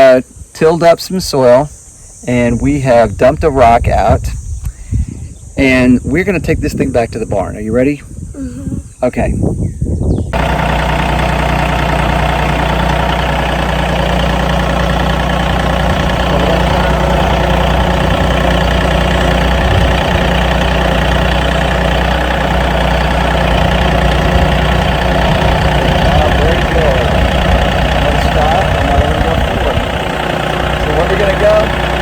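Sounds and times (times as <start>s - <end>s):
tractor diesel engine running: 10.3s - 32.0s.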